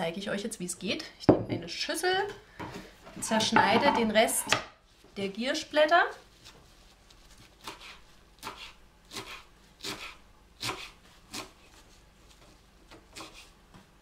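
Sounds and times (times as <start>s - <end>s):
knife cutting leaves on wooden board: 7.4s - 11.9s, 12.9s - 13.5s.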